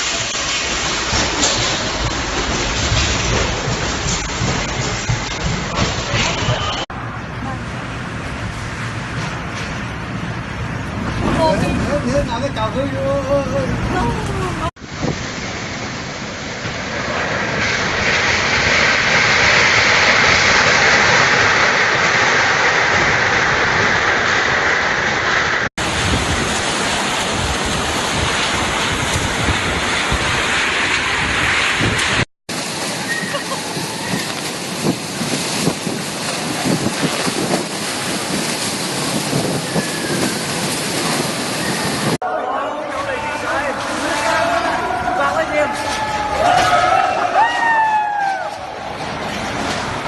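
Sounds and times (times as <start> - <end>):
heavy rain: 0.0 - 50.0
strong wind: 0.0 - 50.0
wind buffeting microphone: 25.7 - 32.9, 33.6 - 42.2.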